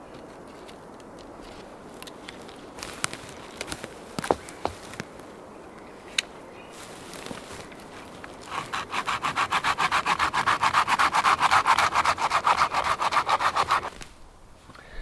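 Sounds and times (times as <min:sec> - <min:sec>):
hand saw cutting wood: 0:08.4 - 0:14.0.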